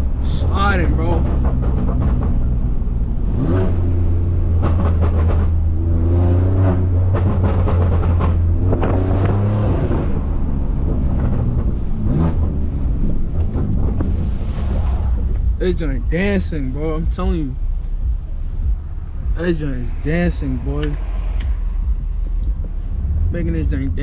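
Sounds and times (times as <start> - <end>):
car engine revving hard: 0.0 - 17.3
exhaust crackles and pops: 0.0 - 24.0.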